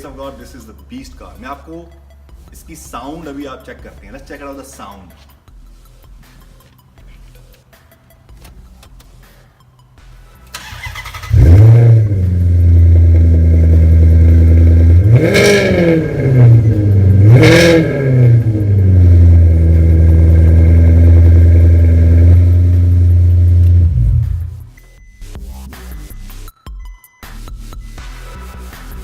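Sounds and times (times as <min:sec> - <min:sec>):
car engine idling and revving: 0:10.0 - 0:26.1
starter motor cranking: 0:10.5 - 0:12.0.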